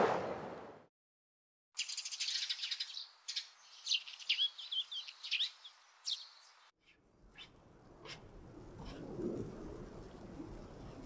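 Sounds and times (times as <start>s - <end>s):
small birds chirping: 1.8s - 8.2s.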